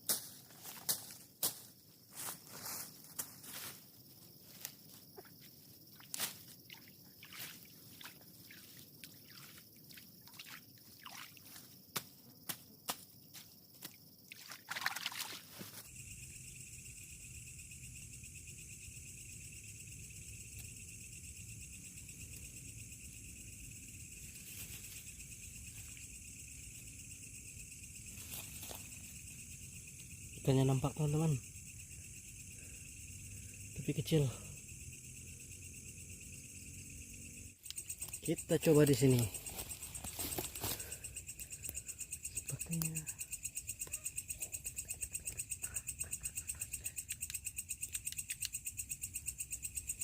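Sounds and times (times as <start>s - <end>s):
night insects chorus: 0.0s - 50.0s
footsteps: 39.2s - 41.0s.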